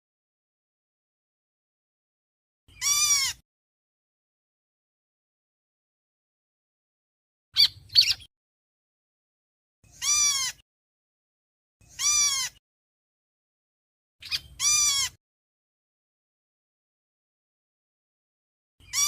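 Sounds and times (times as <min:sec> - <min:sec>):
bird harsh calls: 0:02.7 - 0:03.4, 0:07.6 - 0:08.3, 0:09.9 - 0:10.6, 0:11.8 - 0:12.6, 0:14.2 - 0:15.2.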